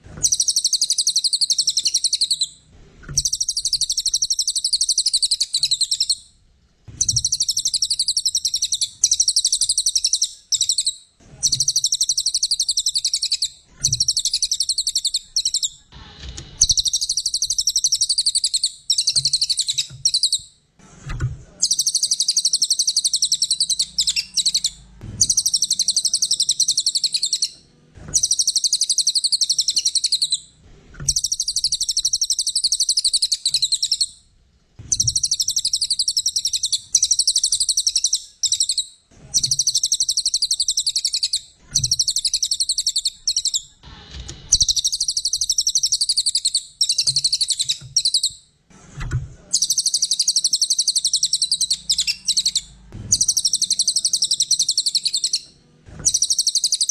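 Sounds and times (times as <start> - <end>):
songbird chattering trill: 0.2 - 2.5, 3.2 - 6.2, 7.0 - 15.8, 21.6 - 27.5, 28.2 - 30.4, 31.1 - 34.1, 34.9 - 43.6, 49.6 - 55.4, 56.0 - 56.9.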